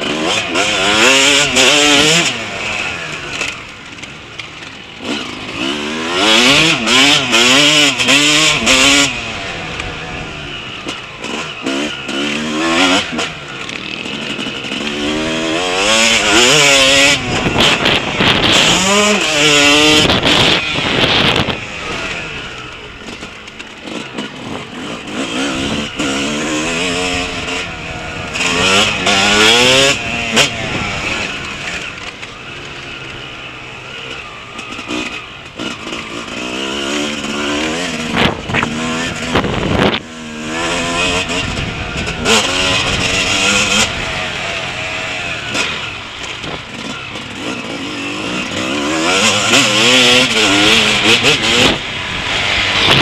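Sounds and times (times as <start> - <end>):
motocross bike engine revving: 0.0 - 53.0
rushing wind noise: 15.0 - 22.6, 37.9 - 46.9, 48.5 - 53.0.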